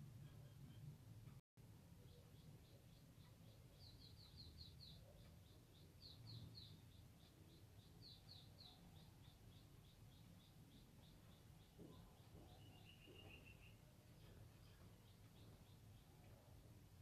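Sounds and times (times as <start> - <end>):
small bird chirping: 1.8 - 17.0.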